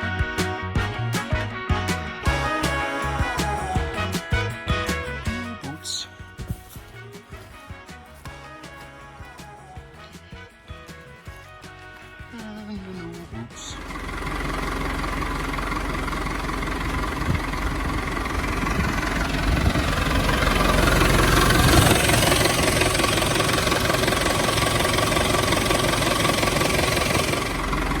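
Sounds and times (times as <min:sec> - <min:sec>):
diesel engine running: 0:01.9 - 0:05.7, 0:12.9 - 0:28.0.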